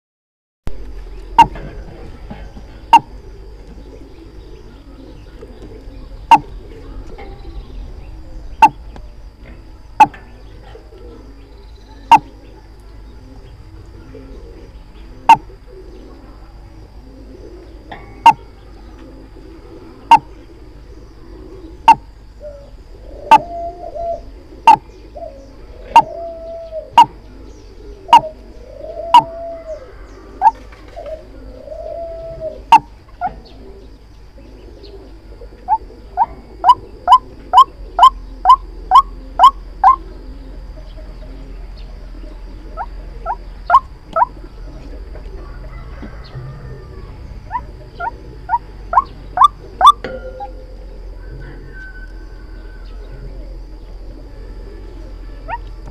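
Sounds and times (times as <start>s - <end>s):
waterhen calling: 1.3s - 1.6s, 2.9s - 3.2s, 6.2s - 6.7s, 8.6s - 8.9s, 10.0s - 10.2s, 12.1s - 12.3s, 15.2s - 15.6s, 19.3s - 20.6s, 21.7s - 22.1s, 23.0s - 27.2s, 28.0s - 30.6s, 31.6s - 33.4s, 35.5s - 40.2s, 42.7s - 44.8s, 47.4s - 50.6s.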